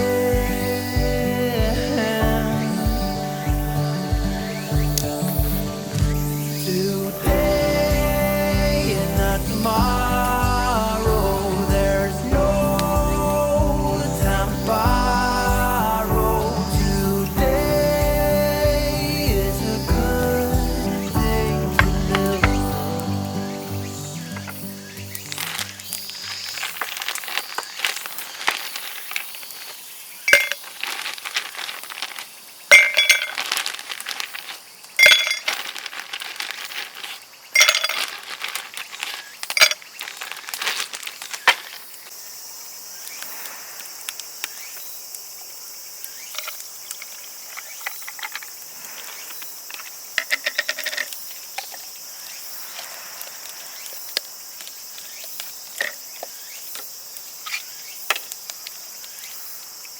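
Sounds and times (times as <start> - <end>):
crickets chirping: 0.0 - 59.9
ringing clinks and knocks: 30.3 - 30.6, 32.7 - 33.4, 35.0 - 35.5, 37.6 - 38.1.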